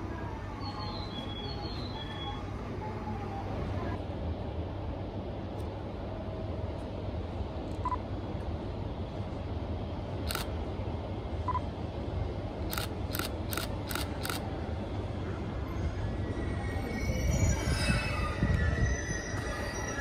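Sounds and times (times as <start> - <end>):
train rumble: 0.0 - 20.0
train wheels and brakes squealing: 0.4 - 2.6, 15.6 - 20.0.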